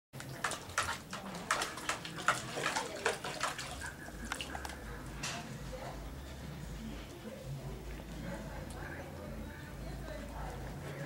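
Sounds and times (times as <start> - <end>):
puppy splashing water: 0.2 - 5.2.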